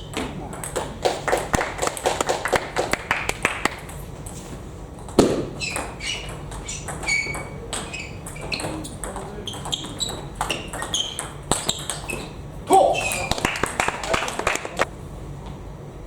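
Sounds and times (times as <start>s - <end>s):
shoes squeaking on floor: 4.0s - 13.7s
table tennis ball clicking: 5.0s - 12.3s.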